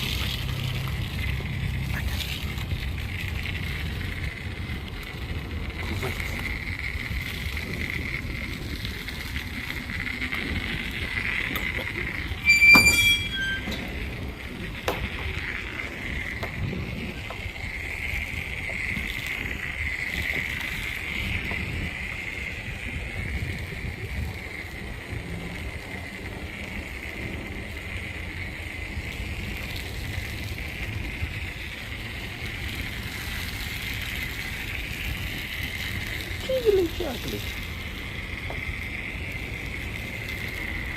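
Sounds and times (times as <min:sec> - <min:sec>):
spray wand hissing water: 0:00.0 - 0:12.7, 0:26.4 - 0:40.9
low rumble: 0:00.0 - 0:36.5.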